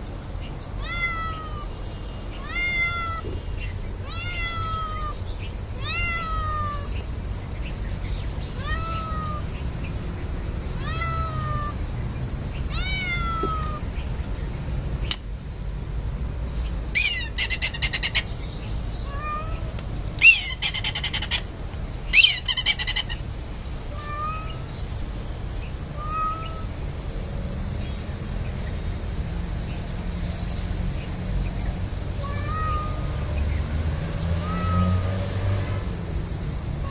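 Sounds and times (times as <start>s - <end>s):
cat meowing: 0.8s - 1.7s, 2.4s - 3.4s, 4.0s - 5.2s, 5.8s - 7.0s, 8.5s - 9.6s, 10.8s - 11.8s, 12.7s - 13.9s, 19.0s - 21.4s, 23.9s - 24.7s, 25.9s - 26.8s, 32.2s - 33.2s, 34.4s - 35.2s.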